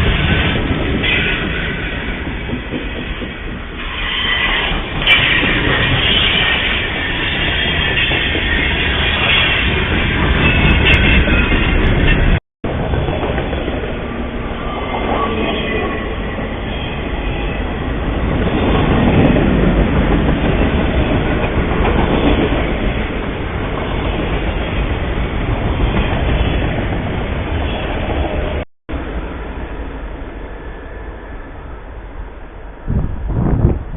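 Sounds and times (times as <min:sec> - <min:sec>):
train wheels clattering on rail: 0:00.0 - 0:14.3, 0:14.9 - 0:28.6.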